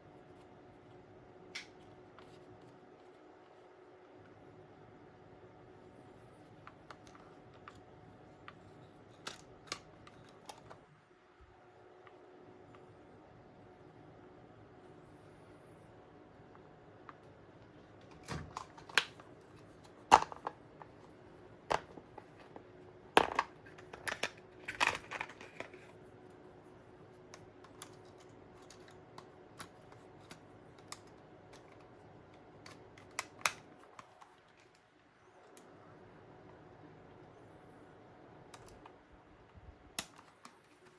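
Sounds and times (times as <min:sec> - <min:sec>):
faint steady hum: 0:00.0 - 0:40.9
plastic clicks of cassette player: 0:09.2 - 0:10.8, 0:18.0 - 0:20.9, 0:27.2 - 0:34.9, 0:39.9 - 0:40.9.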